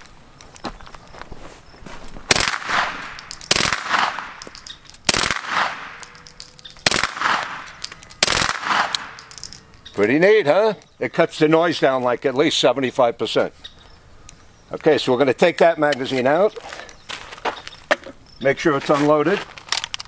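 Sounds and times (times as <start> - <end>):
suppressed gunshots with echo: 2.3 - 9.5.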